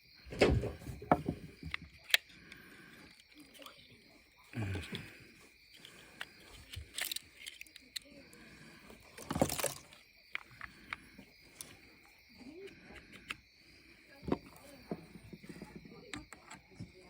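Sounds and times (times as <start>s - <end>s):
tools and parts clicking: 1.1s - 3.9s, 5.7s - 8.1s.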